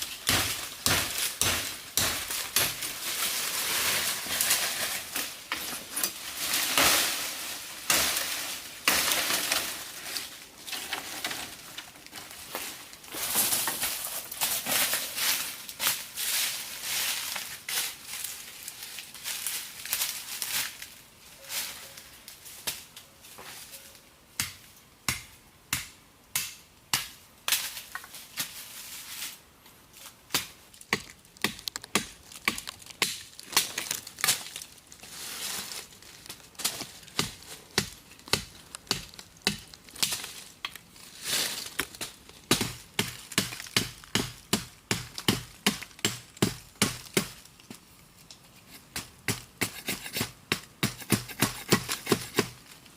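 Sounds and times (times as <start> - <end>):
chopping strikes: 0.2 - 2.8, 30.3 - 34.0, 37.2 - 40.2, 42.5 - 47.4, 48.9 - 52.6.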